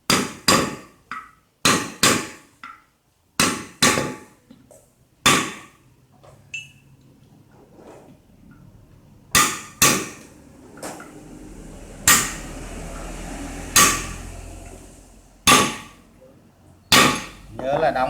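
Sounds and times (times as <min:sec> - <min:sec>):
hammer blows on metal: 0:11.2 - 0:16.0.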